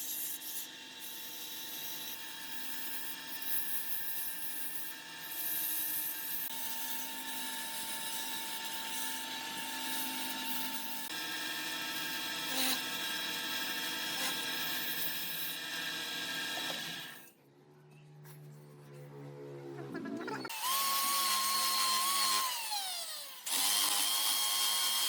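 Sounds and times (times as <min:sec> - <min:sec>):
power tool whining and cutting: 0:05.9 - 0:17.3, 0:20.5 - 0:25.0.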